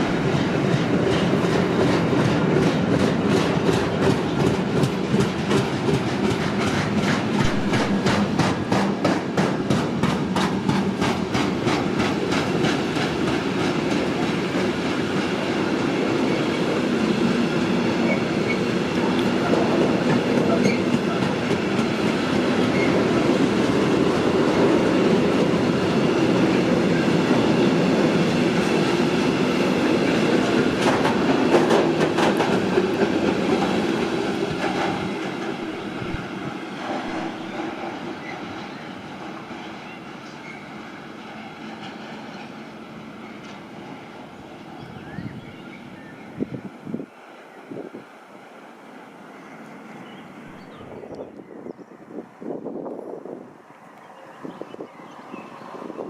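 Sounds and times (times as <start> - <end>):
clickety-clack over rail joints: 0.0 - 44.8
train wheels on rail: 0.0 - 56.0.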